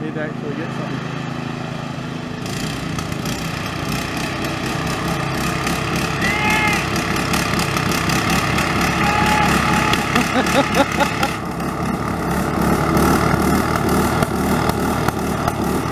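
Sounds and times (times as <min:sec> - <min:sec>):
lawn mower engines running: 0:00.0 - 0:15.9
short high call: 0:06.2 - 0:07.0, 0:08.8 - 0:10.3.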